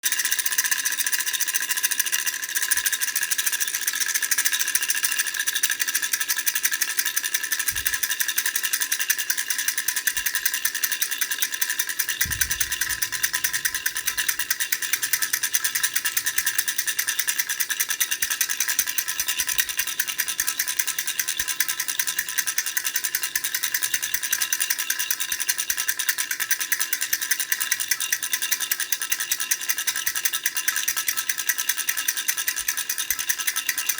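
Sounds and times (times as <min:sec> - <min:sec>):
baby rattle clattering: 0:01.2 - 0:22.6.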